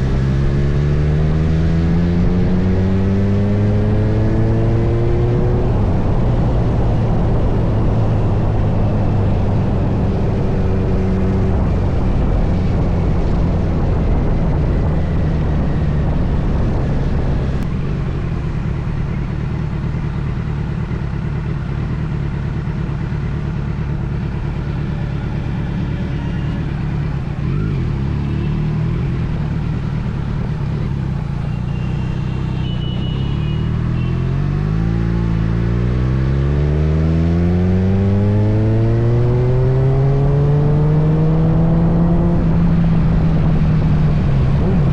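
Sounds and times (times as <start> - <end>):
motorcycle engine running: 0.0 - 44.9
wind rush: 5.0 - 18.3.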